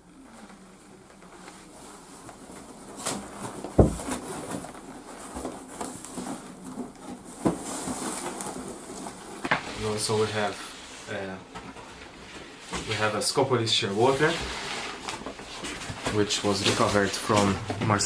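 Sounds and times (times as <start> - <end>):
rustling handling noises: 0.2 - 18.0
loud thump: 3.8 - 4.1.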